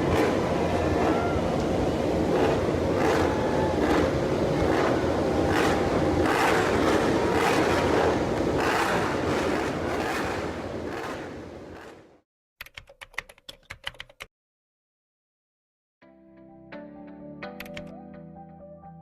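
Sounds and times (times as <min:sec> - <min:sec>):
vehicle ride rumble: 0:00.0 - 0:12.2.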